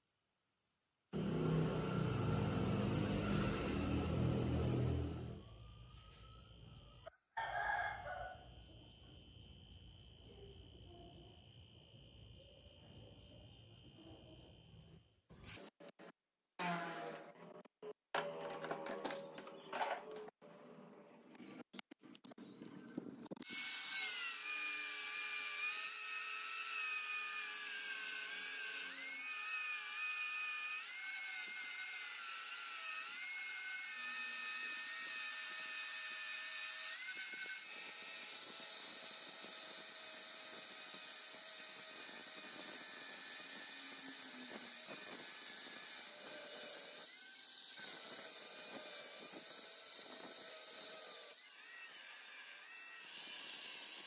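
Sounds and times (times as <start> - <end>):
power tool whining on metal: 1.2 - 6.3, 23.4 - 54.0.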